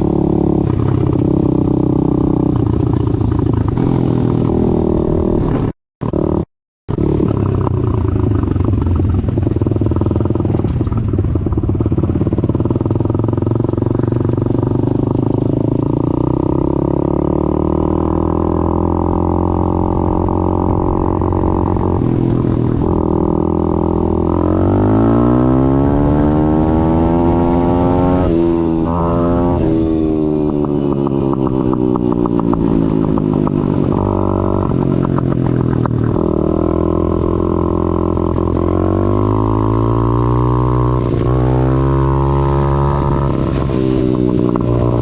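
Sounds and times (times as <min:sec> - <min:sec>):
pit bike engine revving: 0:11.6 - 0:45.0.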